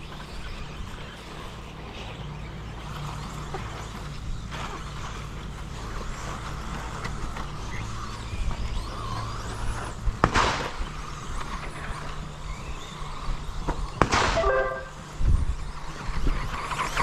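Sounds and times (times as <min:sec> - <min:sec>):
loud rushing burst: 0:14.0 - 0:15.1
brief pitched sound: 0:14.2 - 0:15.0.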